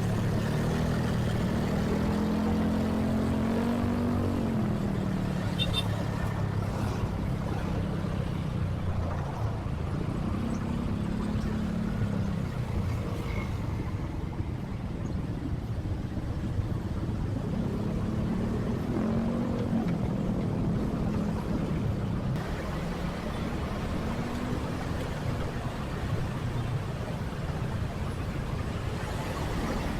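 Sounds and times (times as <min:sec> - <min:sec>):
motorcycle engine revving: 0:00.0 - 0:05.8.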